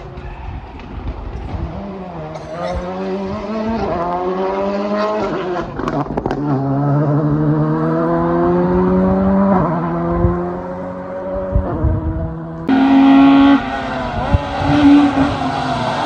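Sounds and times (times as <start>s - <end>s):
car engine accelerating hard: 1.6s - 16.0s.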